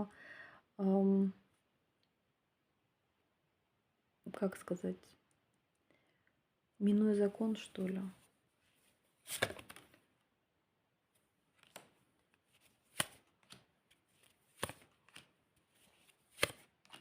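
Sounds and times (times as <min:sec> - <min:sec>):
cards slapping on table: 0:09.3 - 0:09.8, 0:12.8 - 0:15.3, 0:16.3 - 0:17.0.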